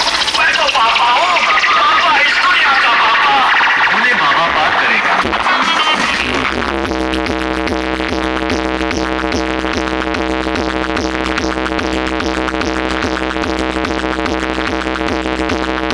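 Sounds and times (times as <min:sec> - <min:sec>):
electronic dance music: 0:00.0 - 0:06.9.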